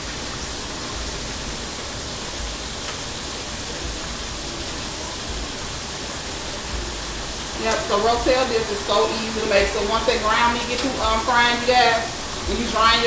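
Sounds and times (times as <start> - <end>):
tap water running: 0.0 - 13.0.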